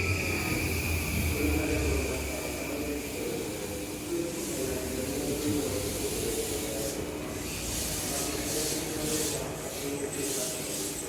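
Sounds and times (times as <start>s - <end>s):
electric train humming: 0.0s - 4.3s.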